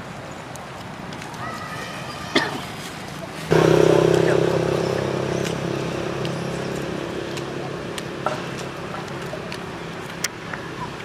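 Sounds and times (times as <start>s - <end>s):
vehicle engine humming: 3.5s - 11.0s.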